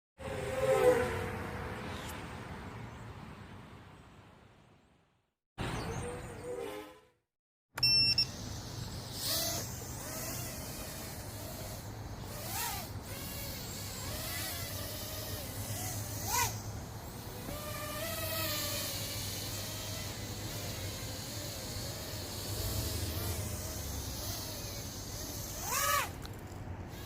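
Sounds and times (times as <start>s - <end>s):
short electronic beep: 7.8s - 8.3s
quadcopter motors whining: 7.8s - 27.0s.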